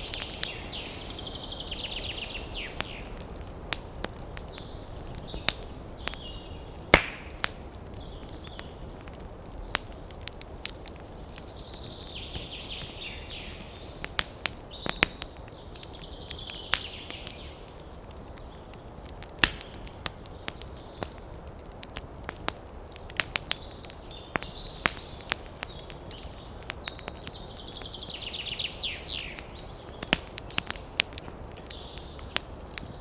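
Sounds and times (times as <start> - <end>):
birds chirping: 0.0 - 33.0
campfire crackling: 0.0 - 33.0
sharp fire pops: 0.0 - 33.0.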